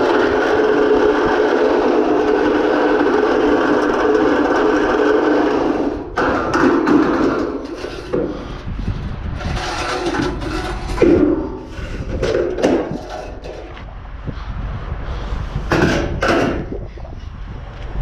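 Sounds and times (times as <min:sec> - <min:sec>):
objects knocking and clattering: 0:02.2 - 0:08.5, 0:09.4 - 0:13.9, 0:15.7 - 0:16.9.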